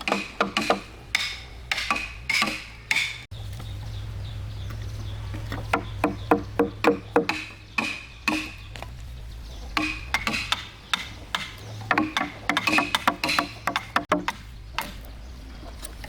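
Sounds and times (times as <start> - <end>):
tool knocking on wood: 5.5 - 8.9, 9.8 - 15.0.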